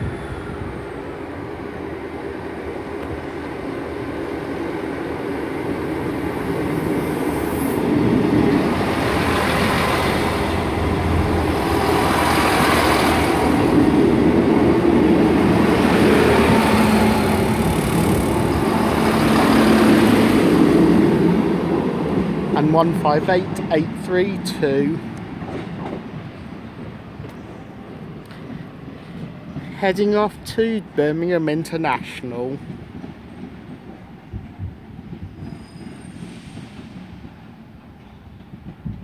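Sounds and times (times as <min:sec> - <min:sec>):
train wheels on rails: 0:00.0 - 0:30.9, 0:31.7 - 0:39.0
diesel train engines: 0:00.0 - 0:39.0.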